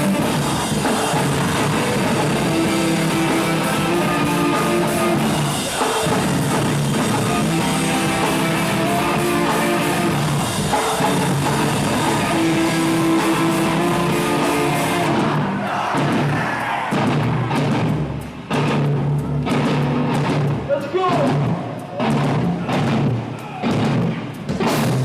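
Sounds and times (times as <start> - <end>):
electric guitars playing chords: 0.0 - 15.7
drum kit: 0.0 - 25.0.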